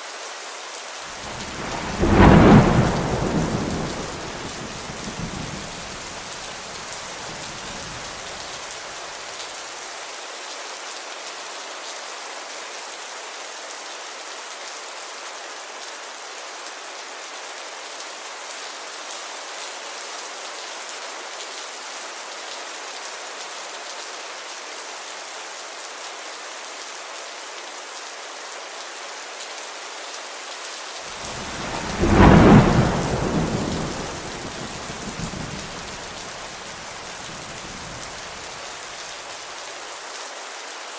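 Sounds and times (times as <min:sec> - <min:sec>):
rain hiss: 0:00.0 - 0:40.9
loud thunderclap: 0:01.2 - 0:08.4, 0:31.2 - 0:38.6
low thunder rumble: 0:01.2 - 0:08.5, 0:31.2 - 0:38.6.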